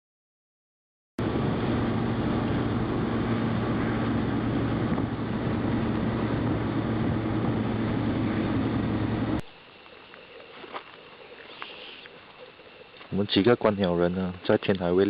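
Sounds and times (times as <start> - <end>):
vehicle engine running: 1.2 - 9.4.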